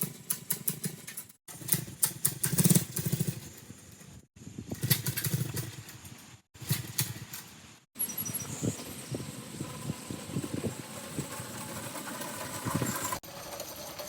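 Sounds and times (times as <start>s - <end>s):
small engine running rough: 1.5s - 4.0s, 8.0s - 14.0s.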